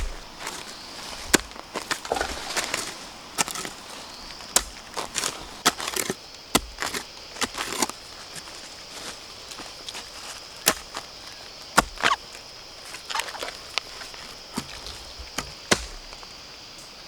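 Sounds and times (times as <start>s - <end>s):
sharp wood chopping strikes: 0.0s - 3.8s, 4.4s - 7.9s, 10.6s - 11.0s, 11.8s - 12.2s, 14.6s - 16.3s
crackling: 0.0s - 16.4s.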